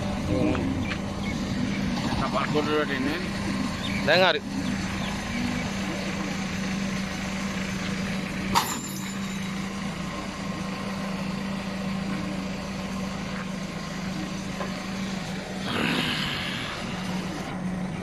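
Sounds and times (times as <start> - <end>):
diesel engine idling: 0.0 - 18.0
sharp metal clank: 8.5 - 9.6.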